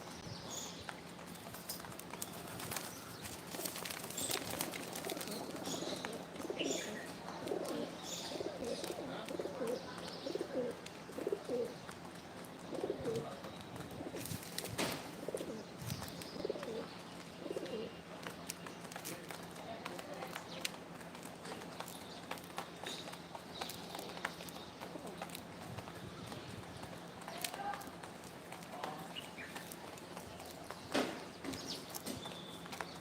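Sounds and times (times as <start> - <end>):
pigeons cooing: 1.3 - 18.3.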